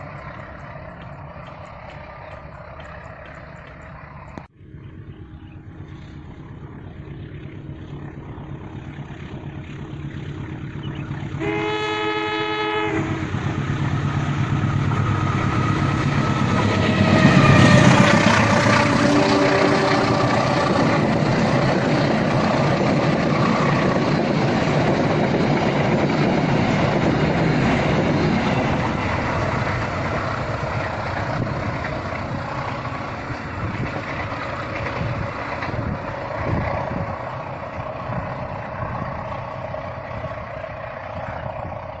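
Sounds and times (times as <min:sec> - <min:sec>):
train rumbling and clattering: 0:00.0 - 0:42.0
train horn blast: 0:11.4 - 0:13.5, 0:18.8 - 0:20.5.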